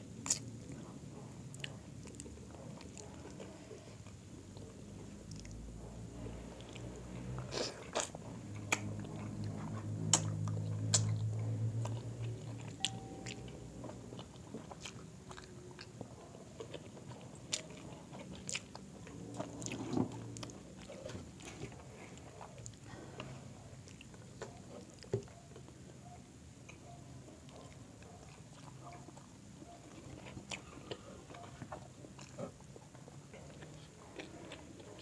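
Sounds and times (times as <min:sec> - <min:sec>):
people chewing: 0:00.2 - 0:26.0, 0:26.6 - 0:35.0
lip smacks: 0:07.4 - 0:12.0
low hum: 0:08.7 - 0:14.2.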